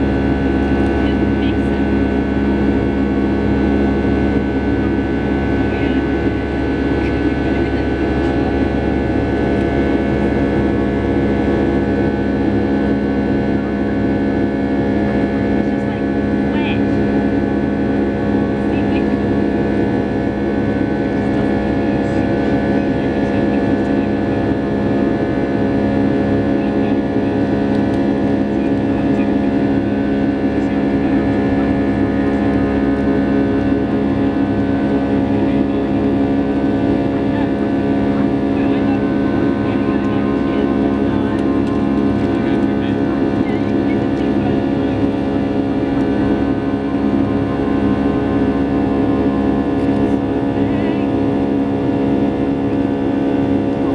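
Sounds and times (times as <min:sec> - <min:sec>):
jet engine cabin drone: 0:00.0 - 0:53.9.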